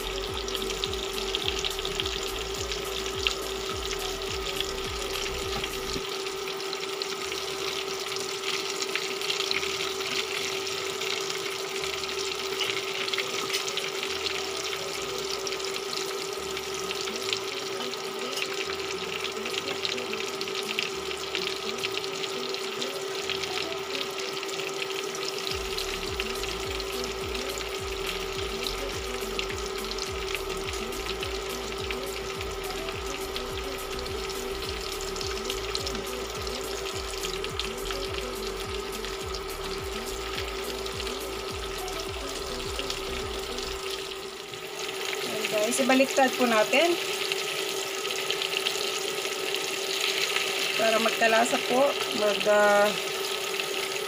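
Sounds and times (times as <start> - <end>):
background music: 0.0 - 53.7
fish sizzling in a pan: 0.0 - 54.0.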